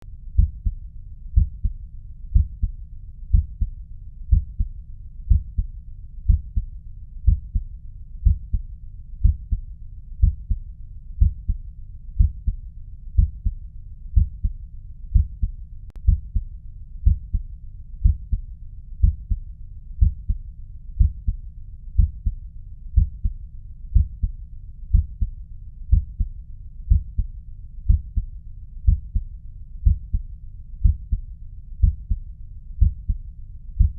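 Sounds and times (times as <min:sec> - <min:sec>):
heartbeat through stethoscope: 0:00.4 - 0:00.8, 0:01.4 - 0:03.7, 0:04.3 - 0:04.7, 0:05.3 - 0:05.7, 0:06.3 - 0:08.6, 0:09.2 - 0:09.6, 0:10.2 - 0:10.6, 0:11.2 - 0:11.6, 0:12.2 - 0:12.6, 0:13.2 - 0:17.4, 0:18.0 - 0:18.4, 0:19.0 - 0:19.4, 0:20.0 - 0:20.4, 0:21.0 - 0:21.4, 0:22.0 - 0:22.4, 0:23.0 - 0:25.3, 0:25.9 - 0:26.3, 0:26.9 - 0:27.3, 0:27.9 - 0:30.2, 0:30.8 - 0:31.2, 0:31.8 - 0:32.2, 0:32.8 - 0:33.2.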